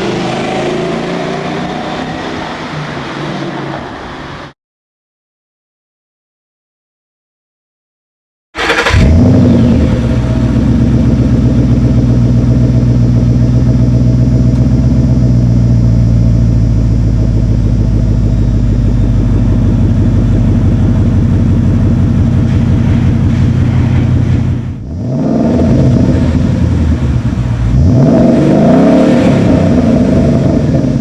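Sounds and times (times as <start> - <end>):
car engine running: 8.6 - 31.0.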